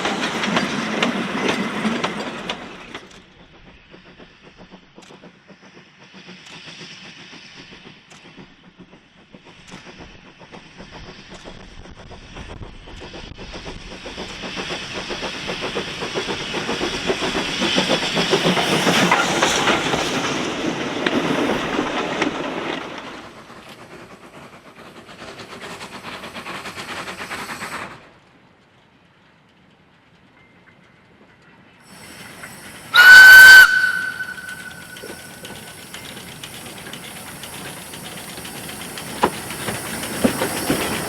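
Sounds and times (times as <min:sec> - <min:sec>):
wheels clattering over rail joints: 0:00.0 - 0:03.4, 0:15.8 - 0:27.4, 0:29.5 - 0:41.0
steam train passing: 0:00.0 - 0:41.0.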